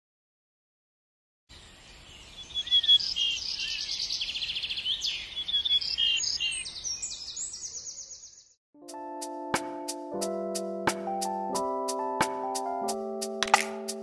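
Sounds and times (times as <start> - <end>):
songbirds chirping and trilling: 1.5 - 8.6.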